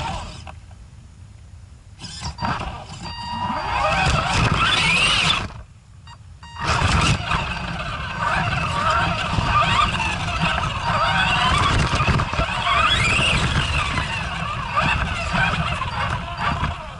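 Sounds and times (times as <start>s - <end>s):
electric motor whining: 0.0s - 0.5s, 2.0s - 5.6s, 6.5s - 16.9s
tyres rumbling on ice: 6.6s - 16.9s.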